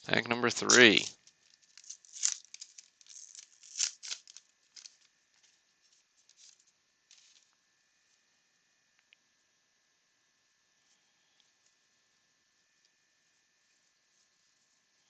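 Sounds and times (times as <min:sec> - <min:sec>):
card pack wrapper crinkling: 0:00.5 - 0:05.6, 0:06.2 - 0:07.5.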